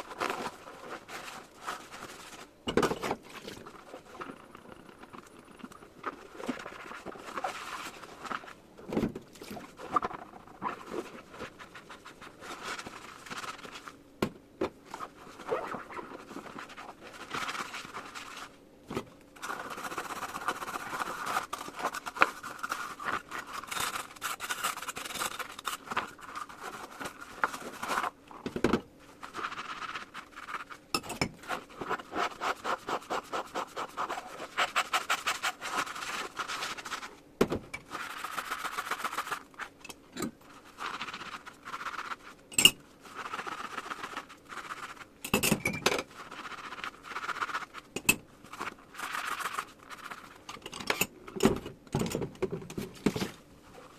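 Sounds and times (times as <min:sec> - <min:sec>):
sponge scrubbing dishes: 0:31.4 - 0:37.0.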